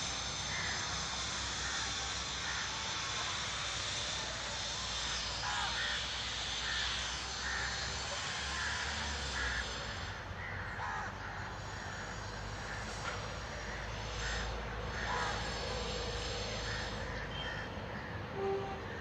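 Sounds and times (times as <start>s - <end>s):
crows cawing: 0.5s - 0.8s, 6.6s - 7.8s, 10.4s - 12.8s, 13.6s - 15.5s.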